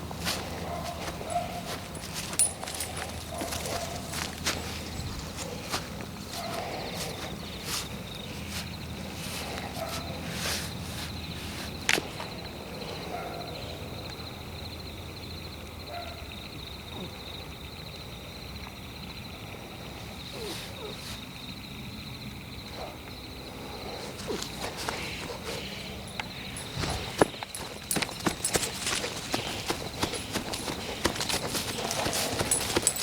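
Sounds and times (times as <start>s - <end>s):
footsteps on forest floor: 0.0s - 12.3s, 23.9s - 33.0s
insects chirping: 0.0s - 33.0s.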